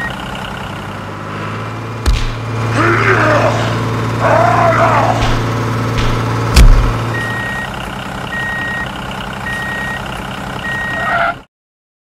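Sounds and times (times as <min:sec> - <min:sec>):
vehicle engine hum: 0:00.0 - 0:11.5
heavy thump: 0:05.2 - 0:07.1.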